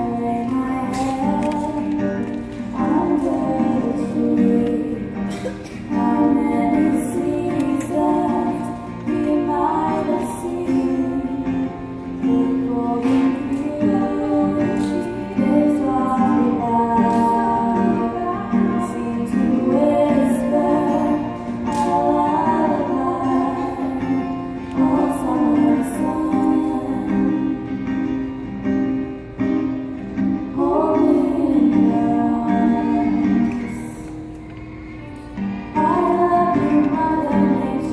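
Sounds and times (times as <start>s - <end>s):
choir singing: 2.7s - 27.6s, 30.5s - 34.0s.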